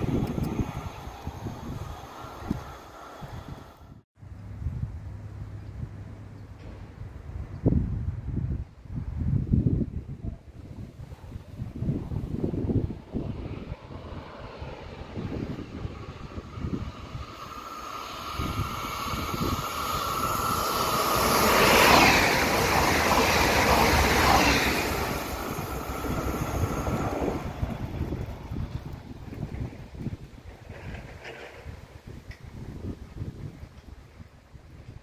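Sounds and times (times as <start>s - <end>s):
electric train whine: 0.0s - 4.0s, 12.6s - 31.6s
wind buffeting microphone: 0.0s - 35.0s
train wheels rushing on rail: 13.2s - 32.6s.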